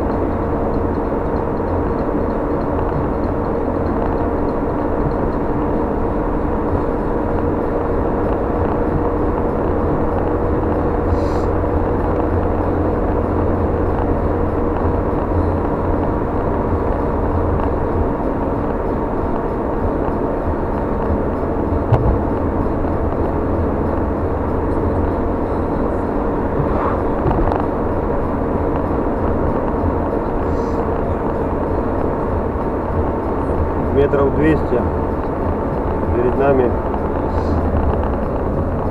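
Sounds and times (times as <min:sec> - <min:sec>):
car road and engine noise: 0:00.0 - 0:38.9
faint steady whine: 0:00.0 - 0:38.9
brief knock: 0:21.9 - 0:22.3.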